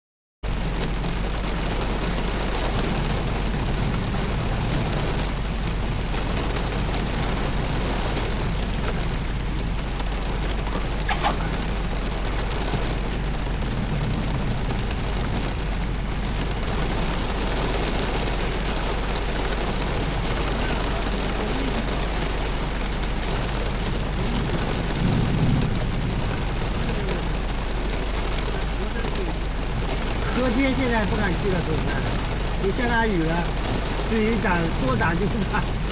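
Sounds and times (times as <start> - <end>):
steady rain falling: 0.4 - 35.9.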